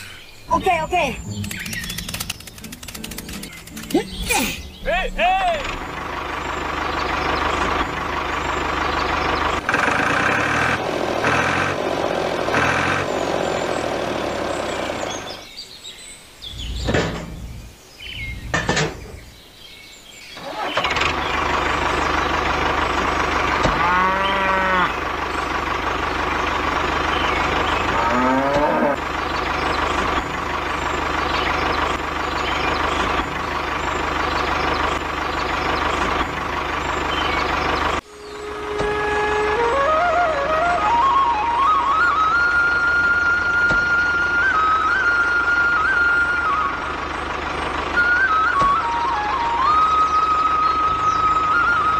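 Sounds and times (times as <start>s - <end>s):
tractor engine running: 0.0s - 15.6s, 16.5s - 19.5s, 20.3s - 51.9s
cow mooing: 23.6s - 25.0s, 27.9s - 29.0s.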